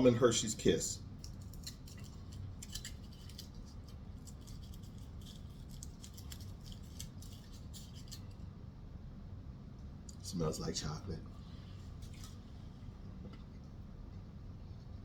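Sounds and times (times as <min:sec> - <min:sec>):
foil wrapper crinkling: 0:01.2 - 0:08.4.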